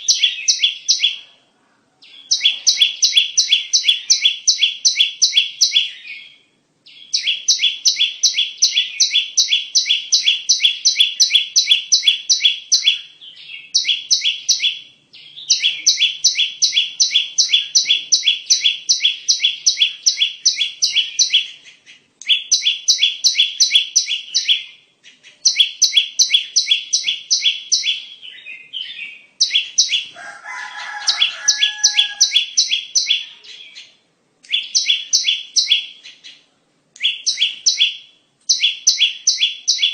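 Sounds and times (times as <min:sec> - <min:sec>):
bird chirping rapidly: 0:00.0 - 0:01.3, 0:02.0 - 0:39.9
lower bird call: 0:02.0 - 0:33.9.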